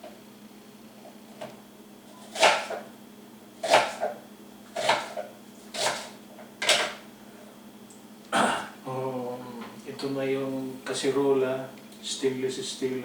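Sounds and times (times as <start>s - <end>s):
knife chopping on cutting board: 2.2s - 2.9s, 3.6s - 7.0s.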